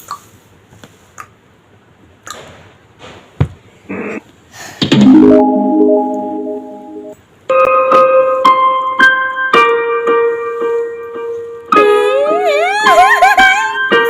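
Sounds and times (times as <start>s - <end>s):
electronic keyboard chord: 5.0s - 11.8s.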